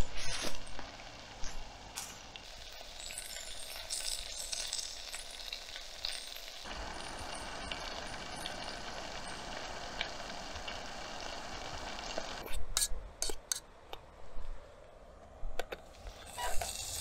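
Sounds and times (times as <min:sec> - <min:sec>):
gas stove burner hiss: 0:00.0 - 0:12.5, 0:15.9 - 0:17.0
vegetables sizzling in oil: 0:00.0 - 0:12.5, 0:16.1 - 0:17.0.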